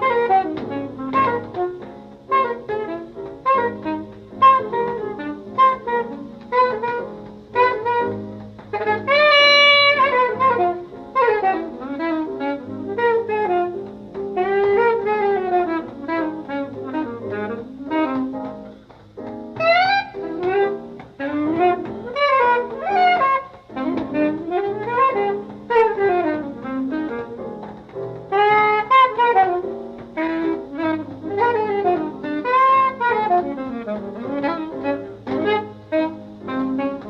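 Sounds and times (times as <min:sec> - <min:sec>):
jazz saxophone runs: 0:00.0 - 0:37.0
small jazz band: 0:00.0 - 0:37.0.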